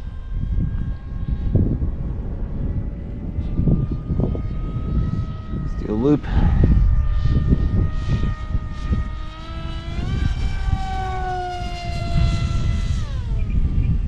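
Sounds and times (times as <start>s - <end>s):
electric model plane whining: 0.0s - 14.0s
wind buffeting microphone: 0.0s - 14.0s.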